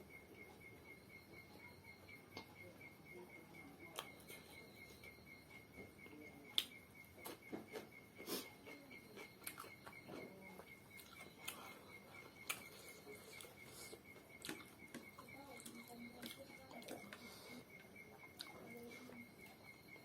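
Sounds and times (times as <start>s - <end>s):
faint high whine: 0.0s - 20.0s
chewing and mouth clicks: 6.5s - 19.8s.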